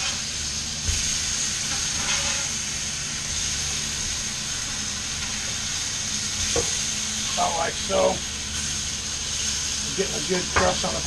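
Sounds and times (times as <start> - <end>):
food sizzling on a griddle: 0.0 - 11.0
metal spatula scraping griddle: 1.7 - 2.7.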